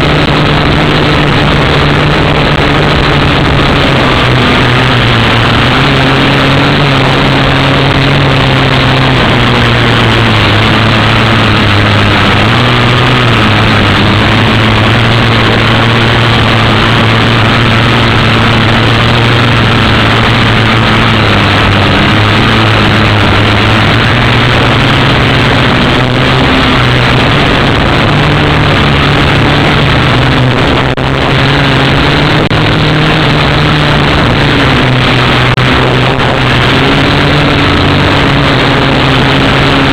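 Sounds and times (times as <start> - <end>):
quadcopter drone propellers whirring: 0.0 - 39.9.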